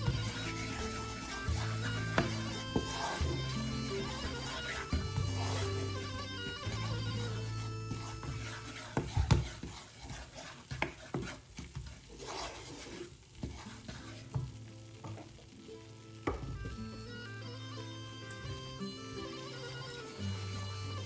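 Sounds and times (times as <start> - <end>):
droning instrumental music: 0.0 - 8.8, 15.6 - 21.0
light sizzle: 0.0 - 21.0.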